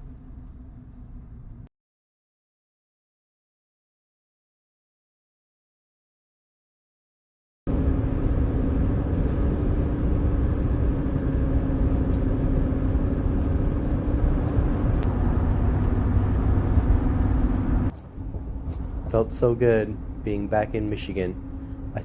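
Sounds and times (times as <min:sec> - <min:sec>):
truck driving on road: 0:00.0 - 0:01.7, 0:07.7 - 0:22.0.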